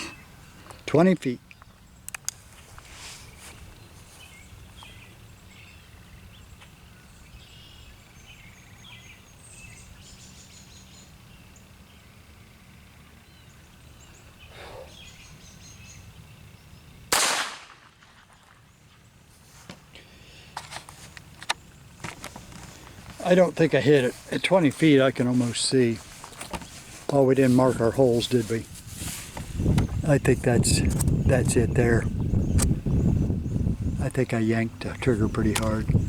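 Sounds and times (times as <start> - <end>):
birds chirping: 0.0 - 36.0
revolver shot: 17.1 - 18.1.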